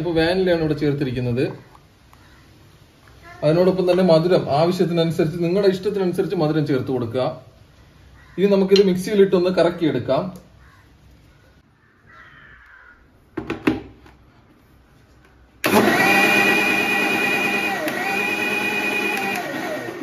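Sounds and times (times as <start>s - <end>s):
electric mixer grinder running: 15.6s - 20.0s.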